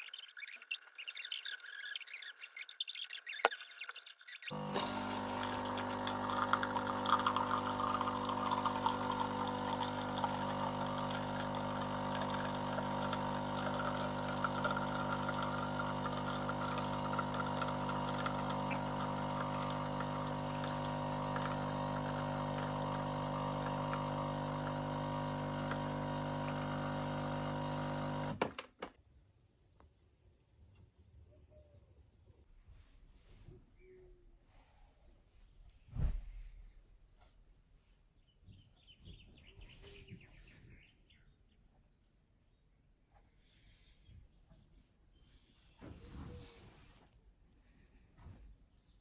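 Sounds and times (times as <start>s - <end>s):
appliance motor humming: 4.5s - 28.9s.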